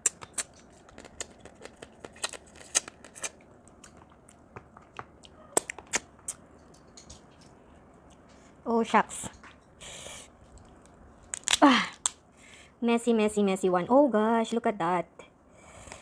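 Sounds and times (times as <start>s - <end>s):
crab shells cracking: 0.0s - 4.4s, 10.6s - 12.2s.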